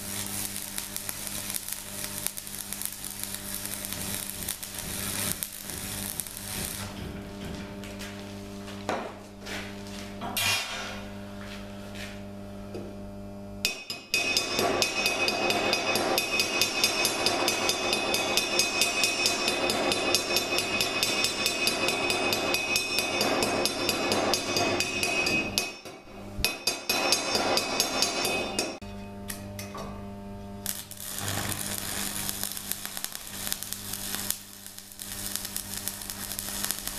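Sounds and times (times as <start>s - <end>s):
hand tool striking metal: 13.6s - 29.8s.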